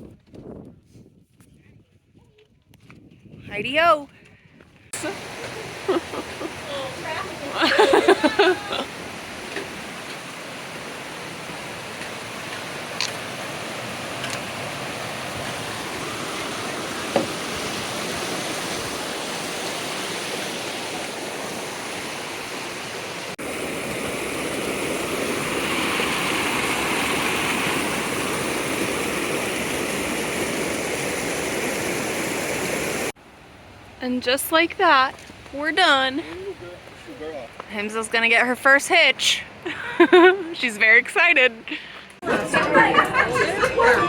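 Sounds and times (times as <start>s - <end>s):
stream water rushing: 5.0s - 33.9s.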